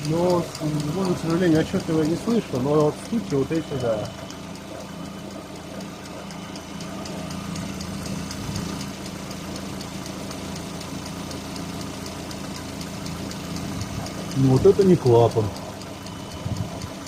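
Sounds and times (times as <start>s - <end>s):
car engine idling: 0.0s - 17.0s
rapid ticking under bonnet: 0.0s - 17.0s.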